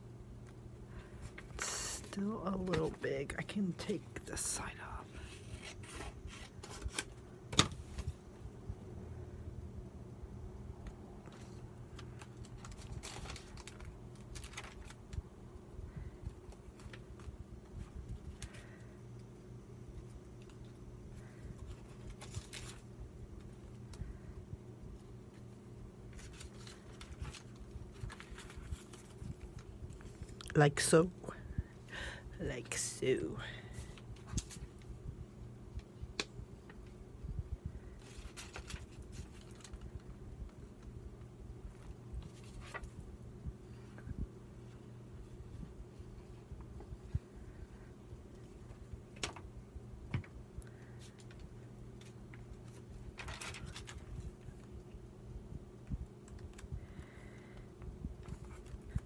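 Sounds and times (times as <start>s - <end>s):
steady low hum: 0.0s - 59.0s
paper rustling: 5.2s - 7.2s, 11.2s - 15.2s, 20.4s - 24.2s, 25.3s - 30.4s, 37.8s - 40.1s, 41.7s - 43.0s, 50.8s - 54.8s, 58.2s - 59.0s.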